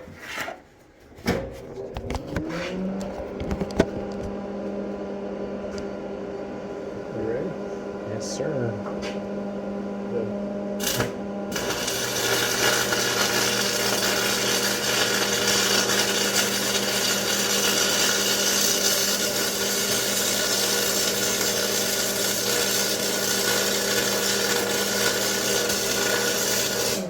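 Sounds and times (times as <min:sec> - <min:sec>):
welder electrical hum: 0:01.3 - 0:27.0
welding arc crackling: 0:10.8 - 0:27.0.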